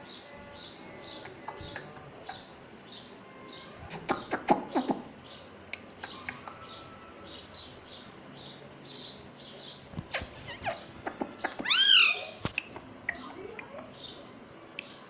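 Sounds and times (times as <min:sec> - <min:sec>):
parakeet chirping: 0:06.0 - 0:12.4.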